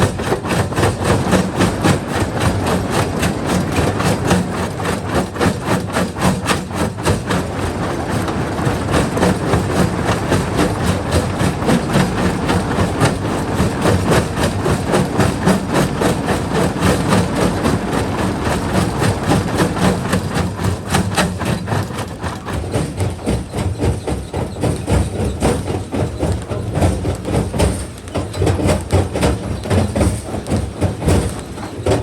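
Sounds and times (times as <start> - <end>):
crusher machine drone: 6.8 - 21.1.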